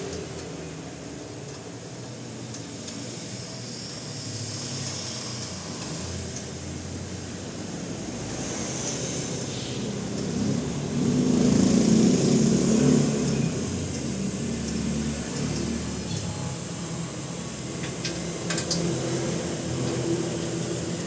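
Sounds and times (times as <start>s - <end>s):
steady fan-like hum: 0.0s - 21.0s
vehicle engine passing: 6.9s - 20.8s.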